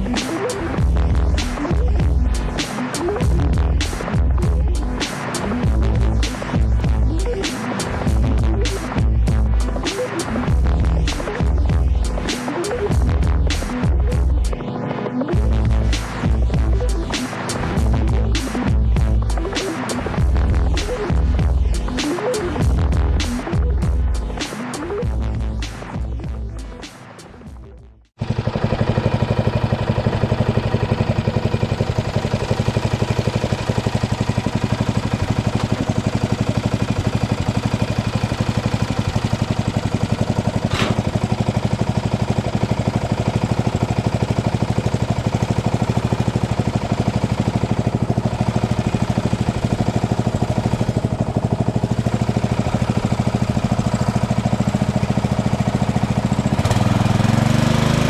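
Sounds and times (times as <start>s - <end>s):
lawn tractor engine running: 0.0s - 14.5s, 28.2s - 58.0s.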